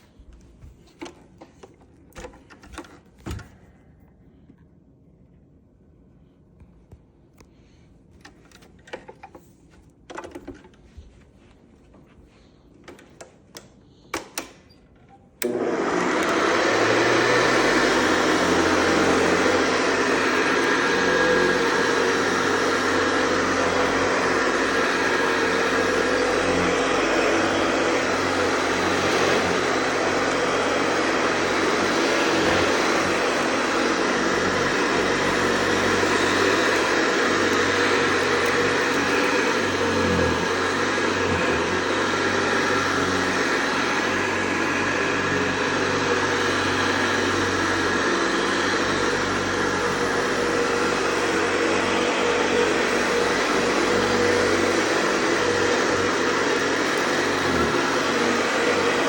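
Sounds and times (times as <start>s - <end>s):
vacuum cleaner motor whining: 12.3s - 59.0s.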